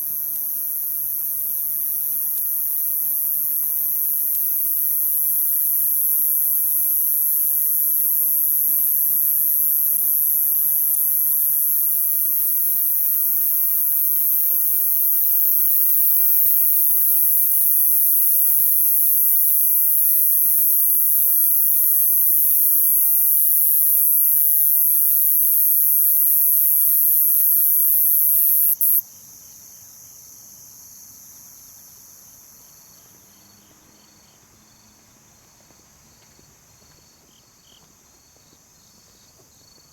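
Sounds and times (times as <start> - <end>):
pulsed cricket chirping: 0.0 - 29.6
crickets trilling: 0.0 - 29.8.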